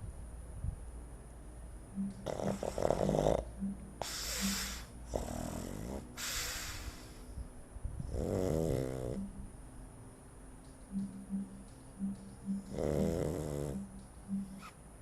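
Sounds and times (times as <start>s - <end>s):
dog snoring: 2.2s - 7.1s, 8.0s - 9.4s, 12.6s - 13.9s.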